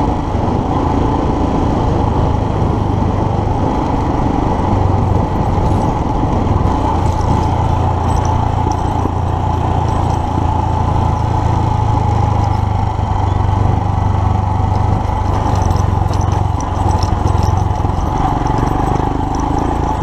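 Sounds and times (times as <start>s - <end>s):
motorcycle engine running: 0.0s - 20.0s
wind: 0.0s - 20.0s
tyre noise on dirt: 4.5s - 20.0s.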